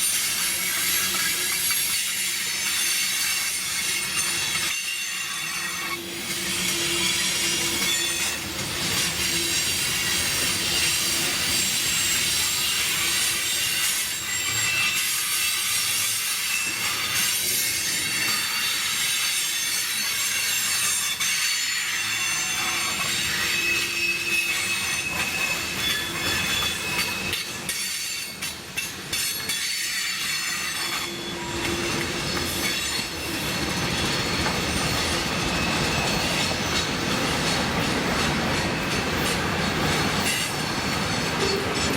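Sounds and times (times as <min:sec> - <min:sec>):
train wheels squealing on rail: 0:00.0 - 0:41.9
wheels clickety-clack: 0:30.8 - 0:41.9.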